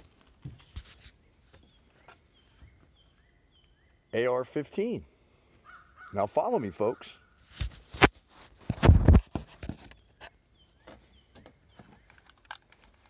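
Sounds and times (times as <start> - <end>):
loud short scuff: 7.5 - 9.9.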